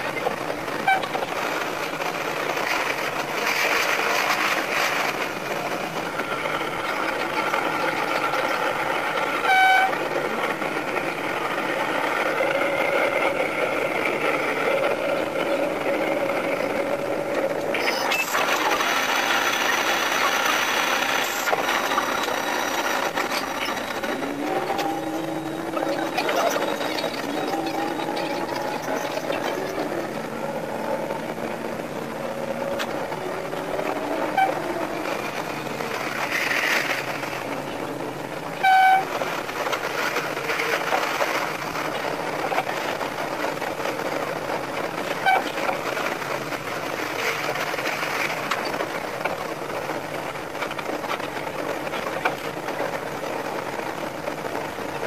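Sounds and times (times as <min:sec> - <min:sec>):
steady whining tones: 0:00.0 - 0:47.5
diesel railcar clatter: 0:00.0 - 0:55.0
train horn blast: 0:09.4 - 0:10.1, 0:34.1 - 0:34.8, 0:38.6 - 0:39.2.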